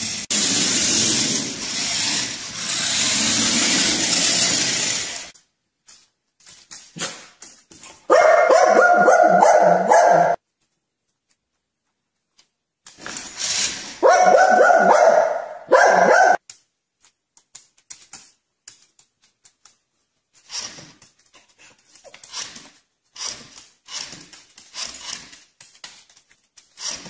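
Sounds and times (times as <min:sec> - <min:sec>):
dog barking loudly: 0:08.1 - 0:10.4, 0:14.0 - 0:16.4.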